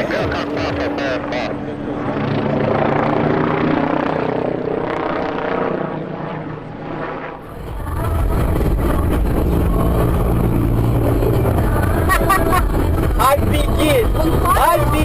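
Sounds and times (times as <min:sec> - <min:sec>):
helicopter rotor and engine: 0:00.0 - 0:15.0
heavy low rumble: 0:07.4 - 0:15.0.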